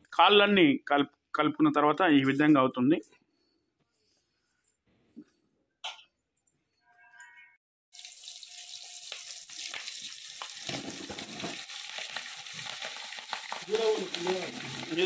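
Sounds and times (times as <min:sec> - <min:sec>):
chicken feet sizzling in oil: 0:08.0 - 0:15.0.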